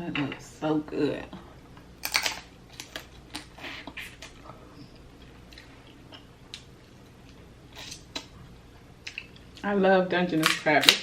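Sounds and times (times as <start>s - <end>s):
person chewing food: 2.0s - 9.6s.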